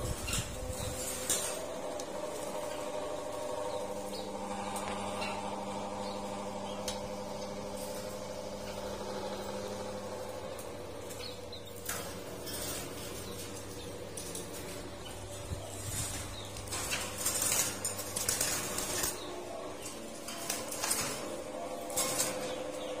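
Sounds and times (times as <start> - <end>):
steady low hum: 0.0 - 23.0
wing flapping: 11.8 - 23.0.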